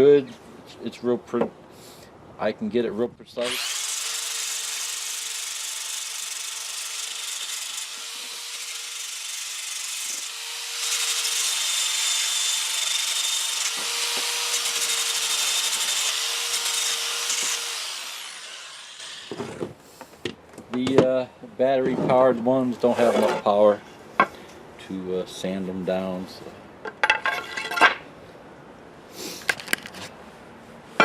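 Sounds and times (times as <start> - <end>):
electric sander on wood: 3.4 - 19.6.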